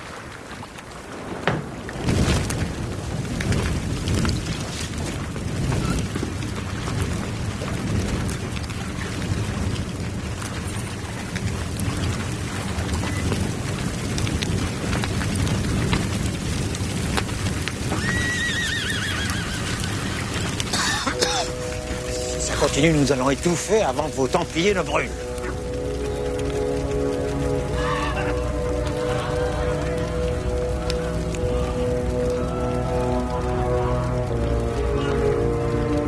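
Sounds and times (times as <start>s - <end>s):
rumbling noise with crackles: 0.0s - 36.0s
horse whinnying: 17.9s - 20.5s.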